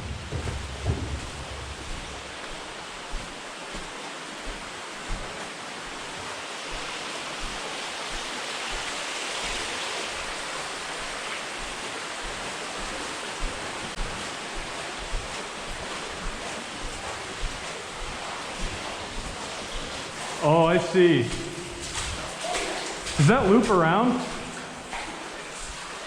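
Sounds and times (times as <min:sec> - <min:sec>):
soft footsteps thumping: 0:00.0 - 0:26.0
steady rushing hiss: 0:00.0 - 0:26.0.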